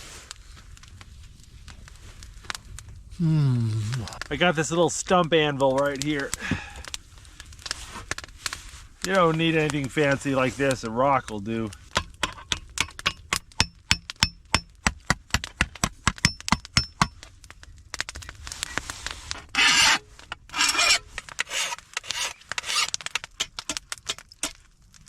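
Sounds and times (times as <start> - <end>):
rough rasping strokes: 18.6 - 24.6.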